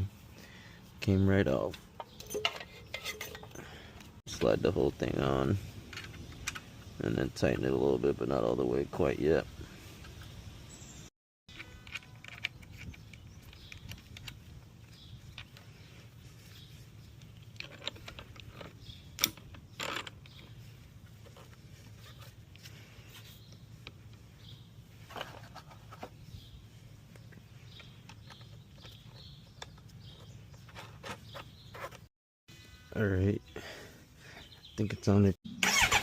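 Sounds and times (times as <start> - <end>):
tools clicking and knocking: 1.7 - 3.6, 17.2 - 20.5.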